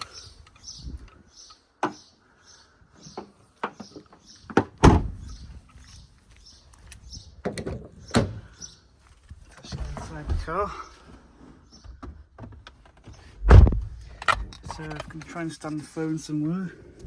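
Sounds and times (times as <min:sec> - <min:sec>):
heavy thump: 0:13.4 - 0:14.0.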